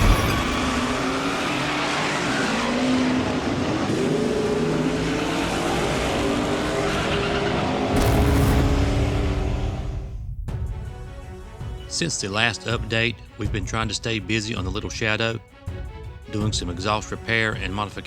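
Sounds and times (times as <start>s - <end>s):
car engine running hard: 0.0s - 10.0s.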